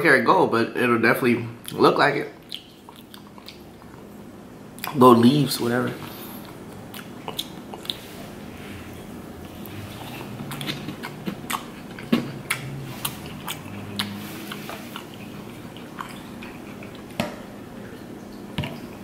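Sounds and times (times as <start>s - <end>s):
chewing with mouth clicks: 2.4s - 4.1s, 6.0s - 8.2s, 9.0s - 17.2s.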